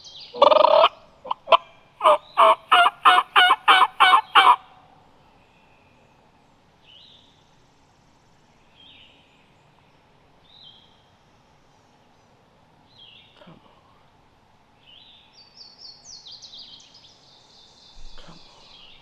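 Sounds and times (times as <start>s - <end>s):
turkey gobble: 0.4s - 4.8s.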